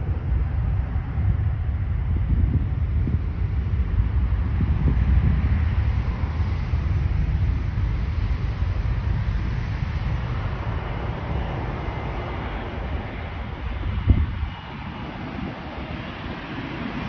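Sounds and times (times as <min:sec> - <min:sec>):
jet engines rumbling: 0:00.0 - 0:17.0
wind on microphone: 0:00.0 - 0:17.0.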